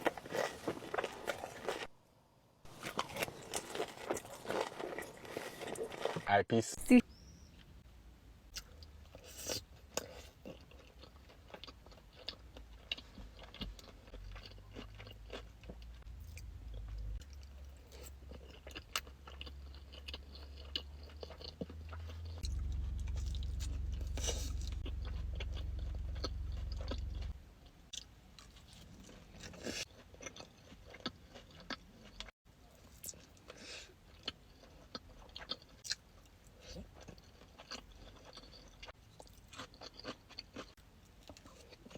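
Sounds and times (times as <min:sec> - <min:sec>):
chewing and biting food: 0:00.0 - 0:01.9, 0:02.7 - 0:06.3, 0:08.6 - 0:41.9
low steady hum: 0:21.9 - 0:27.9.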